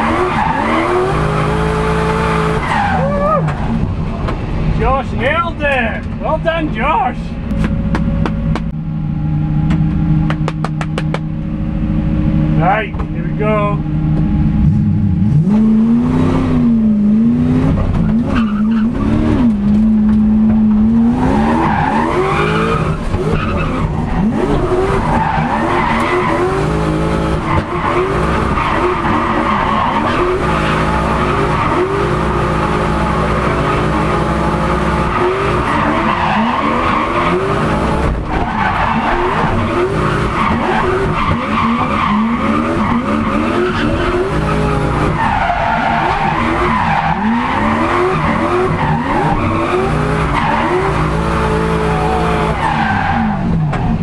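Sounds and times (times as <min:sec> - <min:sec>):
tyres squealing and skidding: 0:00.0 - 0:04.0, 0:17.9 - 0:54.0
car engine revving: 0:00.0 - 0:06.6, 0:07.2 - 0:54.0.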